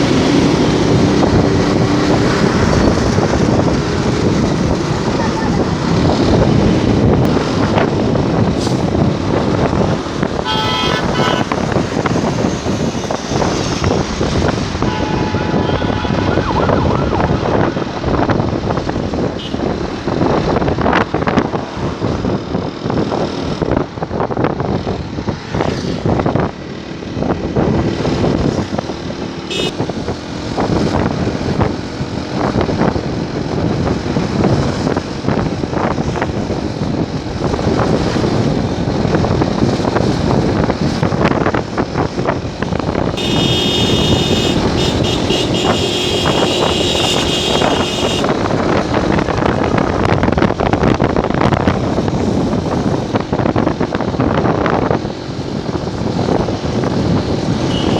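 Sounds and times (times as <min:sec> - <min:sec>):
motorcycle road noise: 0:00.0 - 0:57.9
wind buffeting microphone: 0:00.0 - 0:57.9
vehicle horn tooting: 0:10.4 - 0:11.6, 0:14.8 - 0:16.5, 0:29.5 - 0:29.9, 0:43.2 - 0:48.3, 0:57.7 - 0:57.9.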